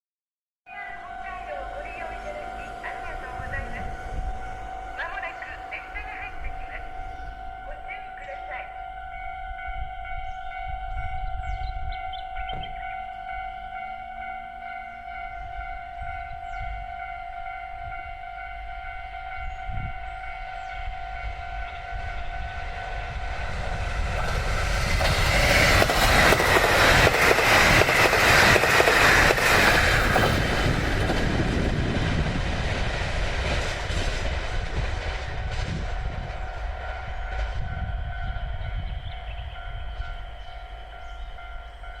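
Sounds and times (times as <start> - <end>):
steady multi-pitch tone: 0.7 - 11.9
diesel train passing: 0.7 - 42.0.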